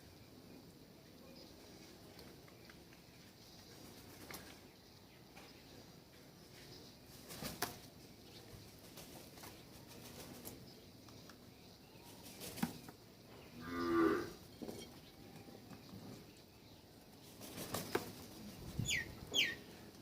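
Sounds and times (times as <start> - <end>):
cow mooing: 13.6 - 14.4.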